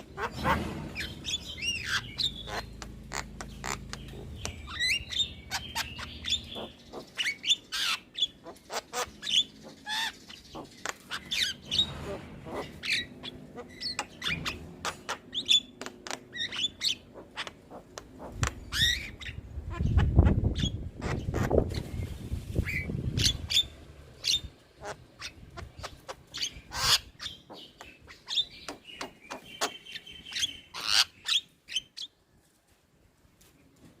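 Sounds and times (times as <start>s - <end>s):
bird singing whistles and squawks: 0.0s - 17.5s, 18.4s - 24.5s.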